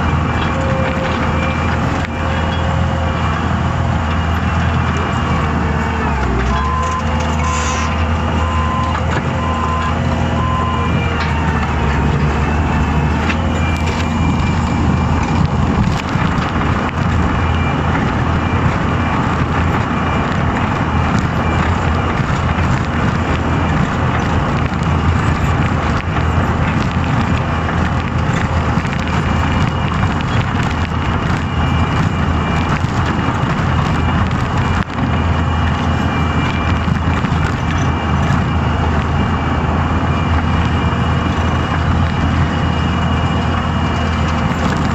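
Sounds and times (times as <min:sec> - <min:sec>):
loader engine running: 0:00.0 - 0:44.9
backup alarm beeping: 0:06.4 - 0:16.4.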